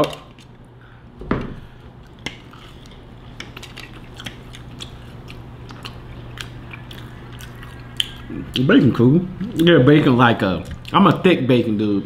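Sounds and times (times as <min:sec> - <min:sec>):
low steady hum: 0:00.0 - 0:12.0
person chewing crisp food: 0:02.0 - 0:08.7.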